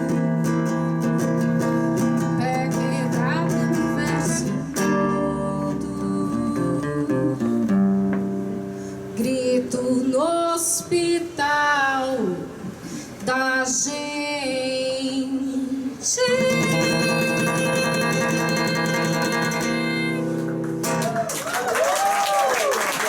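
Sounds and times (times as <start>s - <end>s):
acoustic guitar strumming: 0.0s - 9.9s, 16.2s - 21.2s.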